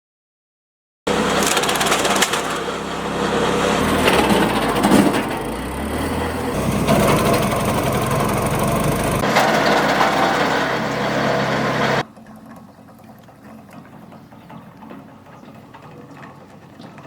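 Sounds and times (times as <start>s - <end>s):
wood cracking and splintering: 1.1s - 2.9s
wood chipper humming: 1.1s - 12.0s.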